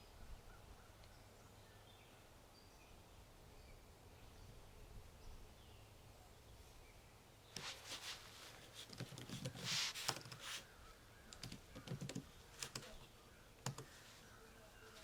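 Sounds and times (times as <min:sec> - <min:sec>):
brief rustle: 0:07.6 - 0:10.7
computer keyboard typing: 0:08.8 - 0:10.5, 0:11.3 - 0:12.9, 0:13.6 - 0:13.9.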